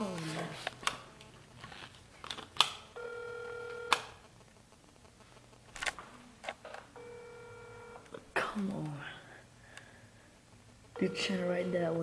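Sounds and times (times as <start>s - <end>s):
telephone line beep: 3.0s - 4.1s, 7.0s - 8.1s, 11.0s - 12.0s.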